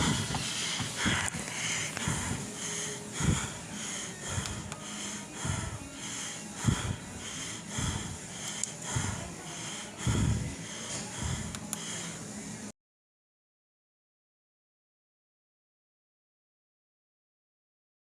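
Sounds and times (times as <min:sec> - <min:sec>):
person breathing: 0:00.0 - 0:12.4.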